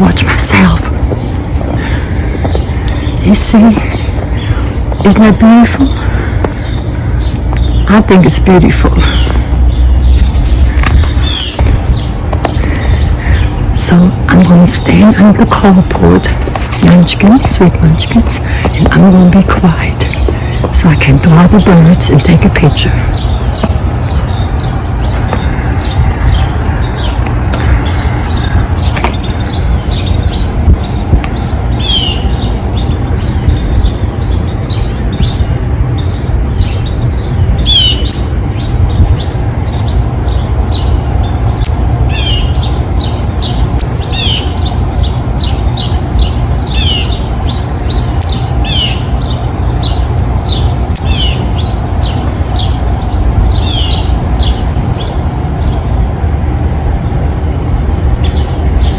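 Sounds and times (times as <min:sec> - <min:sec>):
songbirds chirping: 0:00.0 - 0:58.9
steady low rumble: 0:00.0 - 0:58.9.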